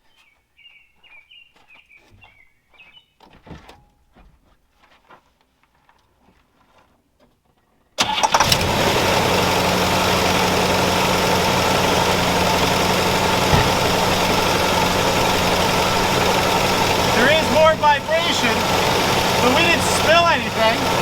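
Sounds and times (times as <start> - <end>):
car engine cranking and idling: 8.0 - 21.0.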